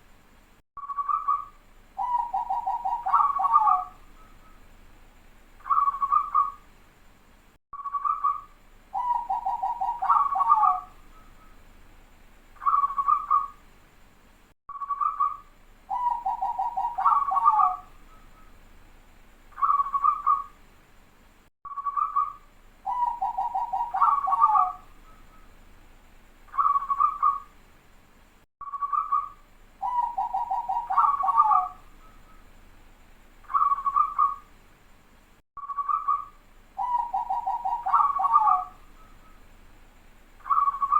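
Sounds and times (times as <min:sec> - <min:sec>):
dove cooing and trilling: 0:02.0 - 0:04.6, 0:05.6 - 0:06.6, 0:08.0 - 0:11.3, 0:12.6 - 0:13.6, 0:15.0 - 0:18.5, 0:19.6 - 0:20.5, 0:21.8 - 0:25.4, 0:26.5 - 0:27.5, 0:28.8 - 0:32.4, 0:33.5 - 0:34.4, 0:35.8 - 0:39.4, 0:40.4 - 0:40.9.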